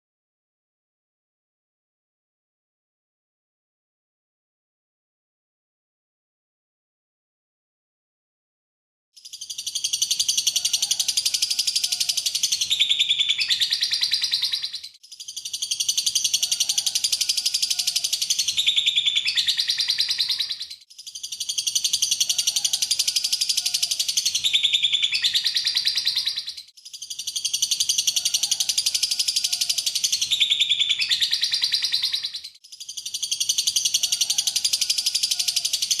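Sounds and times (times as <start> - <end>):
bird chattering trill: 9.2 - 36.0.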